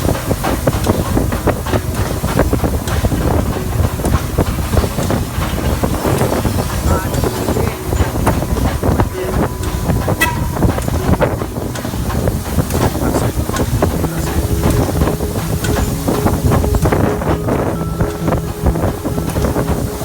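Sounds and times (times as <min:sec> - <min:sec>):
steam train rumbling: 0:00.0 - 0:20.0
track clicks and knocks: 0:00.0 - 0:20.0
high pitched tone: 0:03.4 - 0:20.0.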